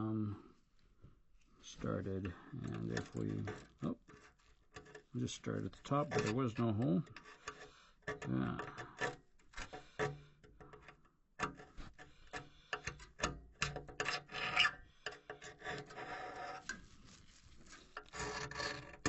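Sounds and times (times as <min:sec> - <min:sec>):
metal pick scraping metal: 0:02.6 - 0:16.8, 0:17.8 - 0:19.0.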